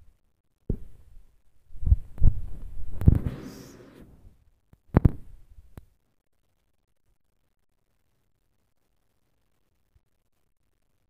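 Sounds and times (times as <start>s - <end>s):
fireworks booming: 3.0s - 4.2s.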